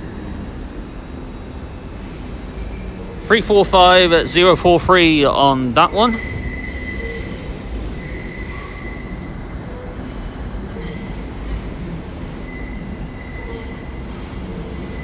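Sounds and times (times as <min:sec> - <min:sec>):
electric train rumbling: 0:00.0 - 0:15.0
train wheels squealing: 0:02.0 - 0:03.2, 0:06.1 - 0:15.0.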